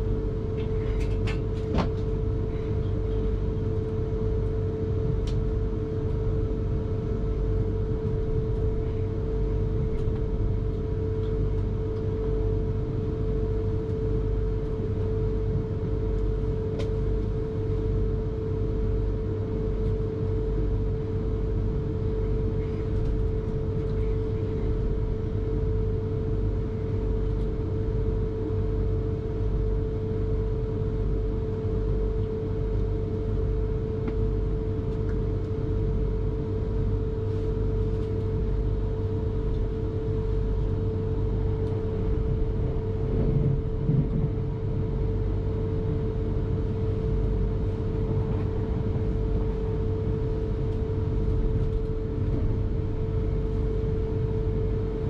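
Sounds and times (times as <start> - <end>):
constant hum: 0.0 - 55.0
wheels rumbling on track: 42.7 - 44.5.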